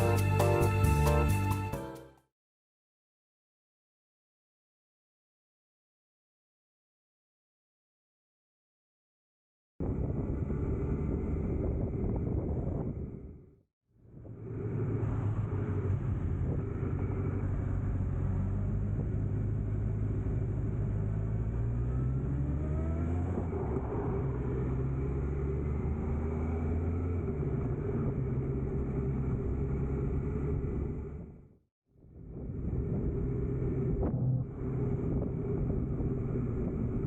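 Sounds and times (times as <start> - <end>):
road noise: 0.0 - 1.9, 14.1 - 31.5, 32.1 - 37.0
vehicle engine running: 14.1 - 31.5, 32.2 - 37.0.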